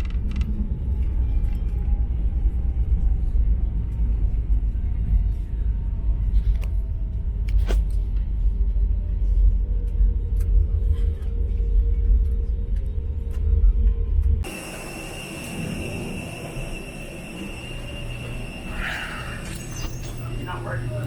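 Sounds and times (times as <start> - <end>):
airliner cabin rumble: 14.4 - 21.0.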